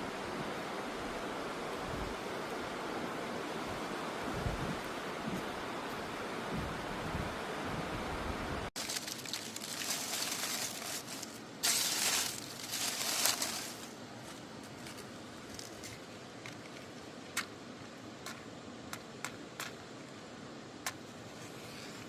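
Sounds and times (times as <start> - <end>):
crunching and crinkling handling: 8.8 - 16.9.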